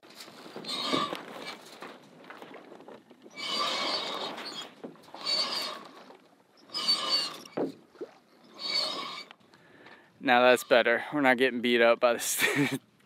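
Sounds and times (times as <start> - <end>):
furling line rasping: 3.4 - 6.0, 8.5 - 9.3.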